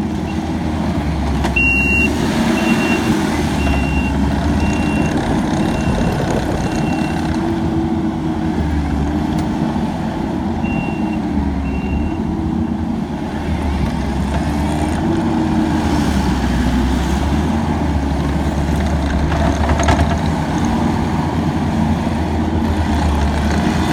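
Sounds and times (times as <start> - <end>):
diesel engine running: 0.0 - 23.9
backup alarm beeping: 1.6 - 7.4, 10.6 - 12.3.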